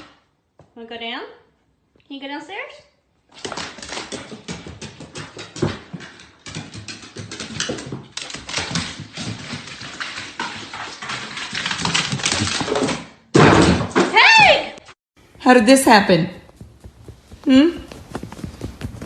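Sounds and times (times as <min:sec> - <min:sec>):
dog claws clicking on stairs: 0:03.3 - 0:13.1.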